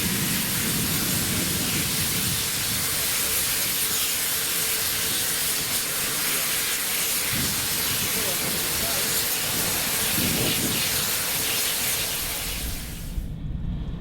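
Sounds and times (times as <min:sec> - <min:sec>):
steam hissing: 0:00.0 - 0:13.3
low rumble: 0:12.2 - 0:14.0.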